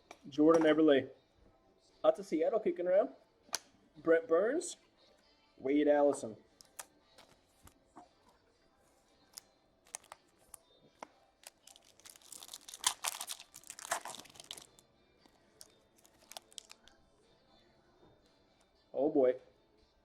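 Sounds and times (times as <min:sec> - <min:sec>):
foil wrapper crinkling and tearing: 0:06.6 - 0:07.4, 0:09.9 - 0:10.6, 0:11.4 - 0:14.8, 0:15.6 - 0:16.9
cards and packaging clicking: 0:06.6 - 0:07.8, 0:09.9 - 0:10.6, 0:11.4 - 0:14.8, 0:15.6 - 0:16.9.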